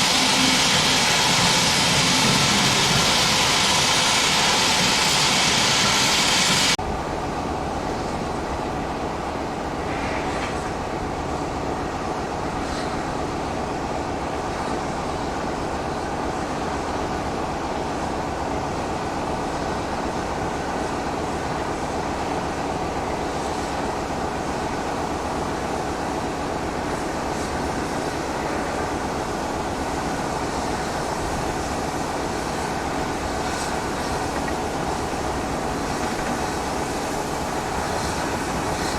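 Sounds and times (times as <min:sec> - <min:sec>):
loud steam hiss: 0:00.0 - 0:06.8, 0:21.9 - 0:38.9
steam train rumbling: 0:00.0 - 0:38.9.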